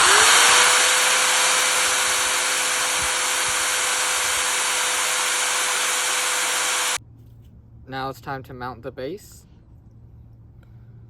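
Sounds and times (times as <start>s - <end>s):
electric drill whirring: 0.0s - 7.0s
steady hum: 0.0s - 7.0s.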